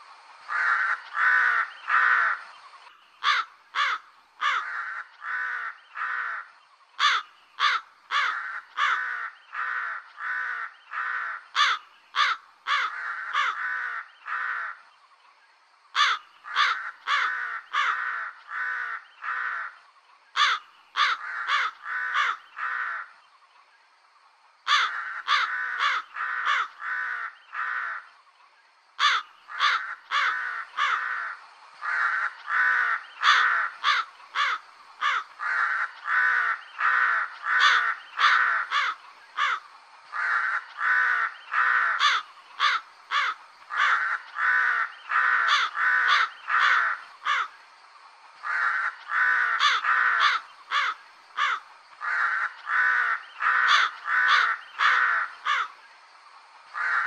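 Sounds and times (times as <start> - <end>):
crow cawing: 0.5 - 2.5, 3.2 - 14.8, 16.0 - 19.8, 20.4 - 23.2, 24.7 - 28.1, 29.0 - 47.6, 48.4 - 55.8, 56.8 - 57.0.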